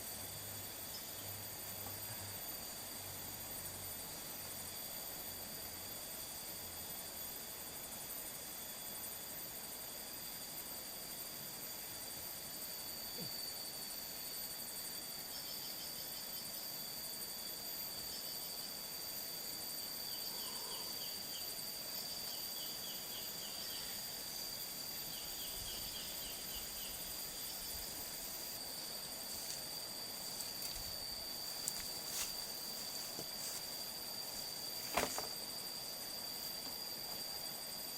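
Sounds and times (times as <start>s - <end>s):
insects trilling and chirping: 0.0s - 37.9s
steady hiss: 0.0s - 37.9s.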